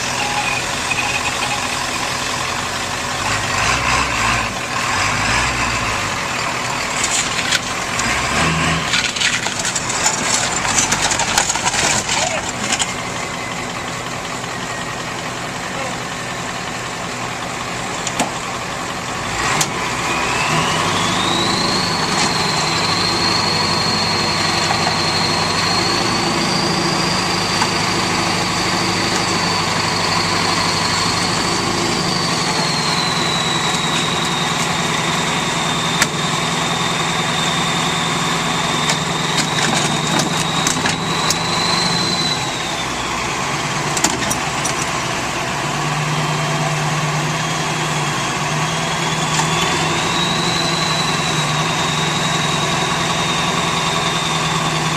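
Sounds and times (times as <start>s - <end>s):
vehicle engine running: 0.0s - 54.9s
high whine: 20.0s - 43.9s.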